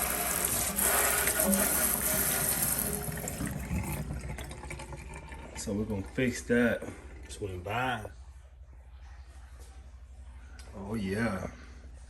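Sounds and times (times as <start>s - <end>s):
water running into sink: 0.0s - 8.0s.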